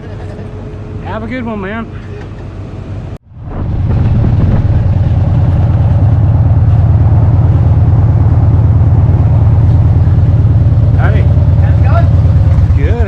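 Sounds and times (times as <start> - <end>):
motorcycle engine running: 3.4 - 13.0.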